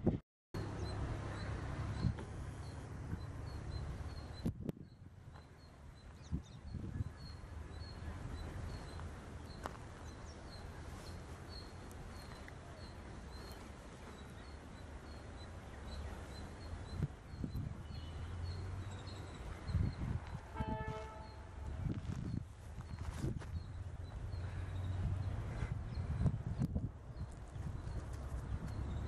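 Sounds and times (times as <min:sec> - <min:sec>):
bird chirping: 0:00.6 - 0:21.6.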